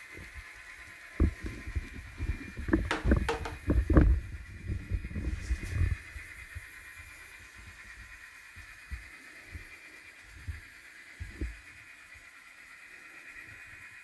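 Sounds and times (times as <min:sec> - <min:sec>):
low thumps: 0:02.9 - 0:03.6.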